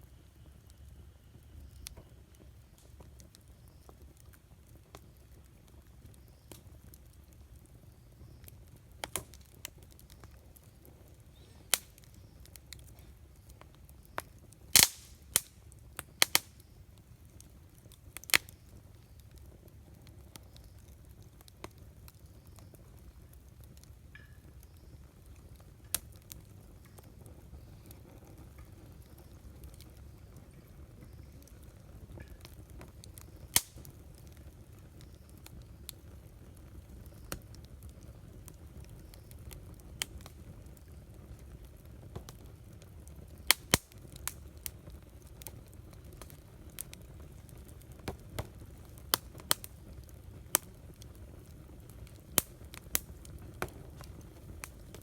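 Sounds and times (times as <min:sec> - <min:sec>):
campfire crackling: 0:00.0 - 0:55.0
sharp pops of fire: 0:00.1 - 0:55.0.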